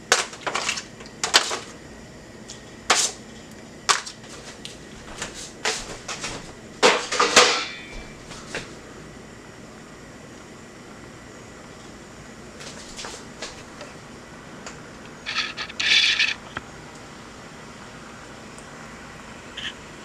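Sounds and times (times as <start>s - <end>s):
pots and utensils clattering: 6.0s - 8.6s.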